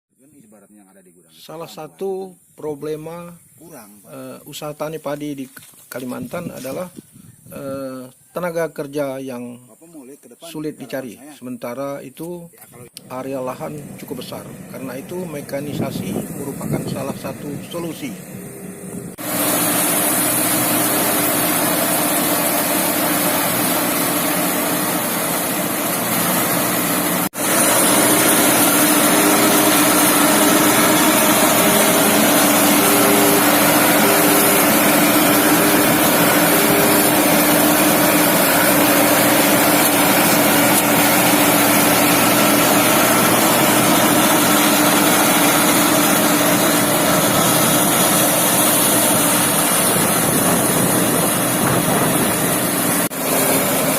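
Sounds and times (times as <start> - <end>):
on-off tone: 12.9 - 53.9
farm machine engine running: 13.0 - 53.9.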